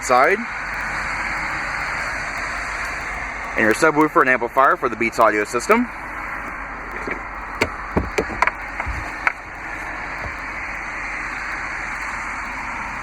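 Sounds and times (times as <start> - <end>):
steady background hiss: 0.0 - 13.0
sharp knocks and clicks: 5.2 - 12.2.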